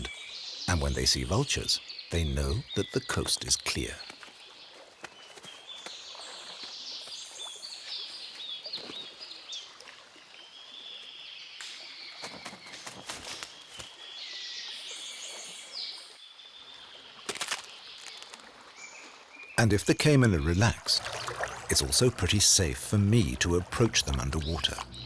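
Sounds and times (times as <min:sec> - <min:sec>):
birds chirping: 0:00.0 - 0:09.4, 0:17.2 - 0:25.0.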